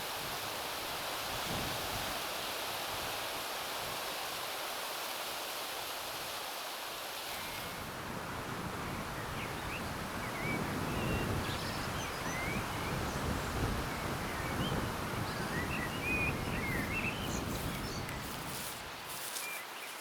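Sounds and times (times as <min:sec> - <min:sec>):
small birds chirping: 0:14.3 - 0:20.0
steady hiss: 0:17.6 - 0:20.0.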